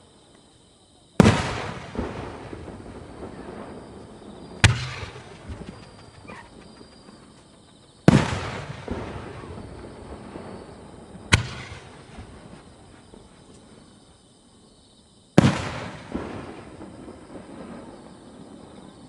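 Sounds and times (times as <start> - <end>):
firework shells booming: 1.2 - 13.3, 15.4 - 18.1
sharp firework bang: 4.6 - 6.5, 8.1 - 9.9, 11.3 - 12.5.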